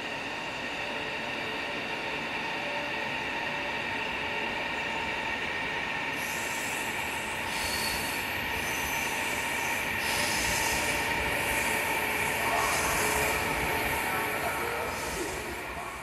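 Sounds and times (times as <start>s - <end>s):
electric train running with whine: 0.0s - 16.0s.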